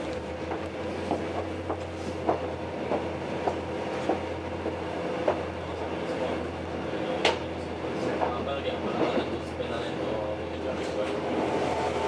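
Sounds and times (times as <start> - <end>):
train low rumble and hum: 0.0 - 12.0
train wheels clicking over rail joints: 0.1 - 5.5.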